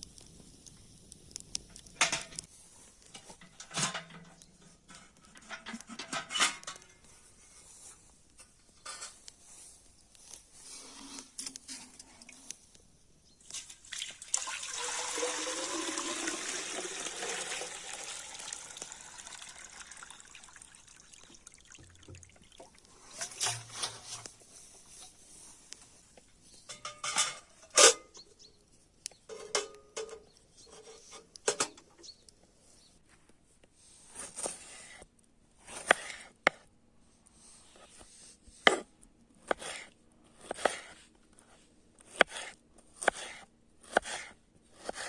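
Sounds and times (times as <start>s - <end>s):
liquid pouring into vessel: 13.9s - 22.8s.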